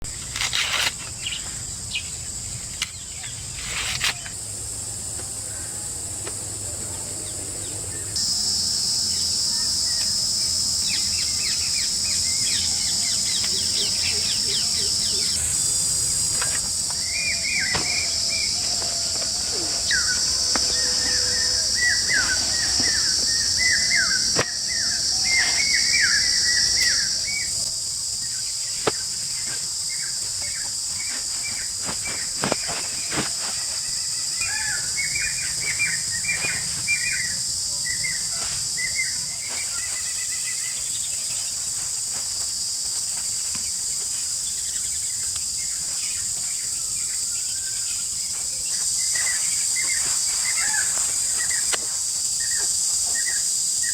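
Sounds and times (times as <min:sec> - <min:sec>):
birds chirping: 0:00.1 - 0:41.8
high-pitched insect drone: 0:00.1 - 0:53.9.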